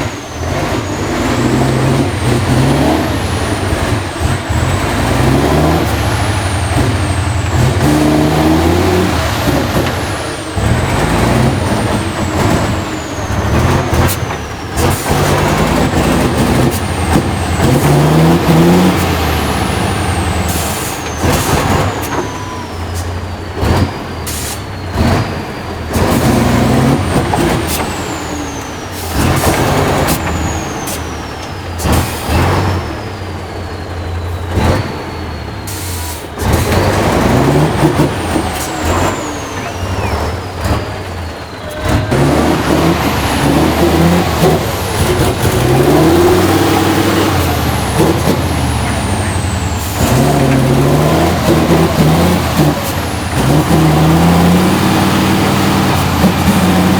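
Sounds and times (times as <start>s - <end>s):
truck diesel engine revving: 0.0s - 56.9s
high falling whistle: 16.8s - 23.2s, 37.1s - 56.5s.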